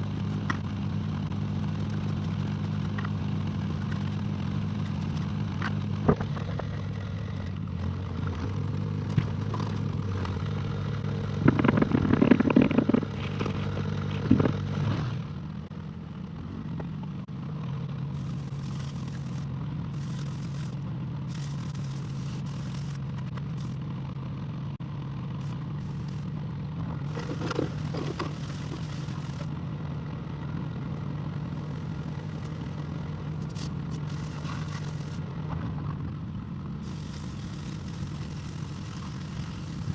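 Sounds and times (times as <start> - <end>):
excavator diesel engine running: 0.0 - 39.9
excavator bucket scraping ground: 11.2 - 15.3, 27.1 - 29.5, 33.4 - 35.8.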